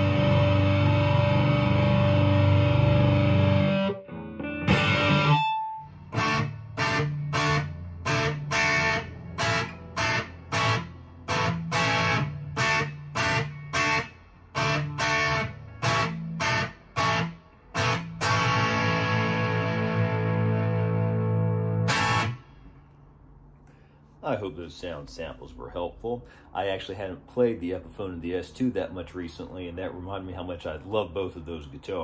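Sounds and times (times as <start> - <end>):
electric guitar chords: 0.0 - 23.0.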